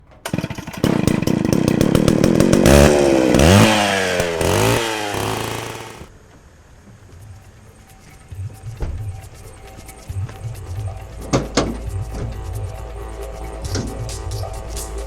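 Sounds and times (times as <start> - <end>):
small petrol engine revving: 0.0 - 6.1.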